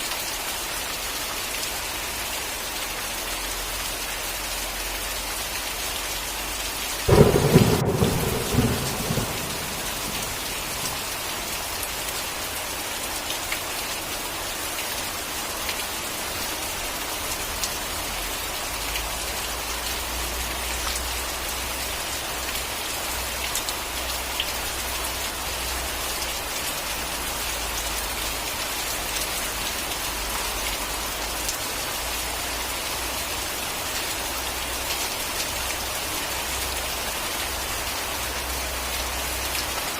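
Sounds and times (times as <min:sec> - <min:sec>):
heavy rain falling: 0:00.0 - 0:39.9
sharp thunderclap rumbling: 0:07.1 - 0:11.6.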